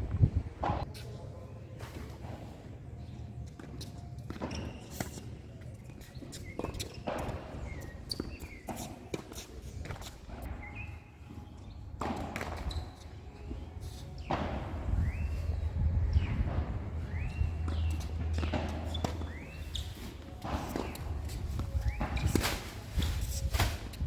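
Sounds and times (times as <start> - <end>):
players' footsteps: 3.4 - 24.0
ball bouncing on court: 12.0 - 13.0, 16.1 - 22.5
tennis ball struck by rackets: 12.0 - 13.6, 14.2 - 22.7.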